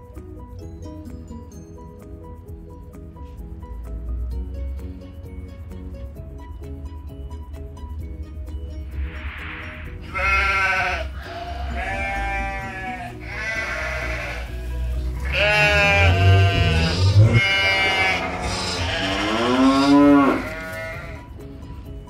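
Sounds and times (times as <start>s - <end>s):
background music: 0.0s - 22.0s
farm animal bleating: 10.0s - 21.4s.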